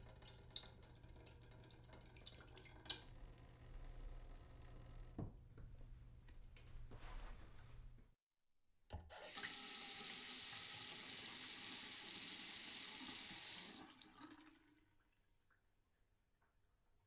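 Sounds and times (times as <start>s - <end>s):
water running into a sink: 0.0s - 5.4s, 9.2s - 14.9s.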